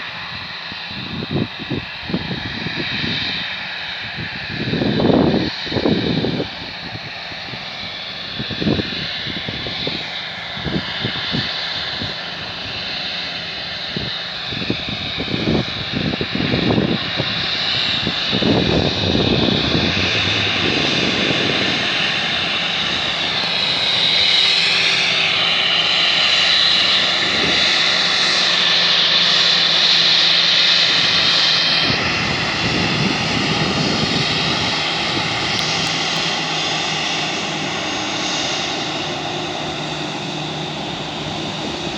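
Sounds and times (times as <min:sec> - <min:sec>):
jet engines whining: 0:00.0 - 0:41.9
gusty low rumble: 0:13.8 - 0:41.9
steady rush: 0:29.9 - 0:41.9.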